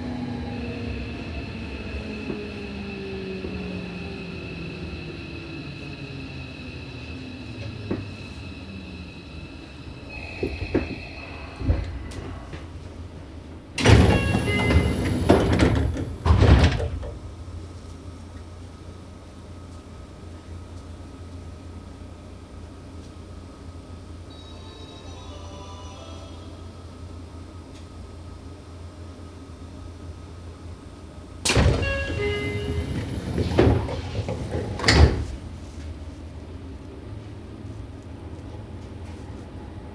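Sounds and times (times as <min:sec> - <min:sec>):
rush of noise: 0:02.7 - 0:13.5
train doors sliding and knocking: 0:07.6 - 0:08.2, 0:10.3 - 0:12.8, 0:13.8 - 0:17.3, 0:31.4 - 0:35.9.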